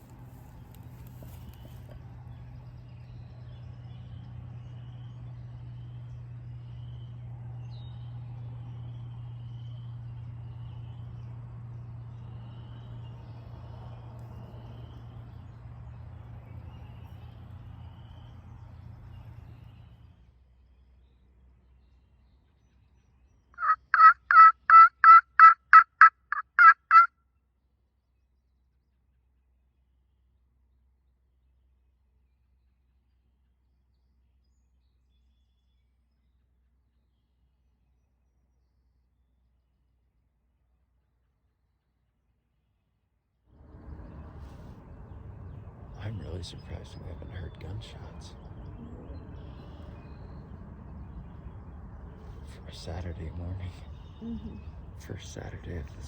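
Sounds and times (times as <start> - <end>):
bird calling: 23.6 - 27.1, 52.2 - 56.0
turkey hen yelps: 23.6 - 27.1
steady low hum: 43.6 - 56.0.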